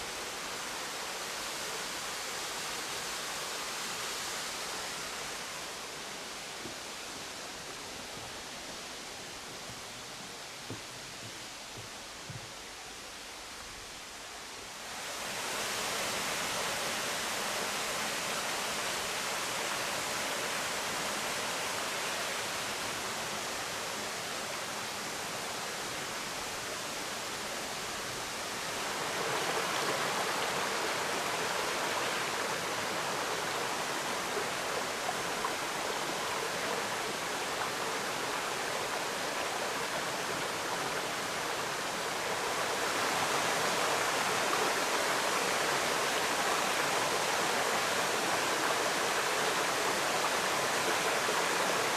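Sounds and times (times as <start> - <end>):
waterfall roaring: 14.8 - 51.9.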